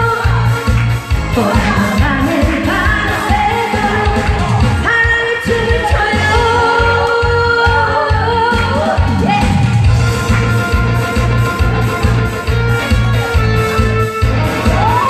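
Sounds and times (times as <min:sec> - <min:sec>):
pop song with vocals: 0:00.0 - 0:11.0, 0:12.1 - 0:15.0.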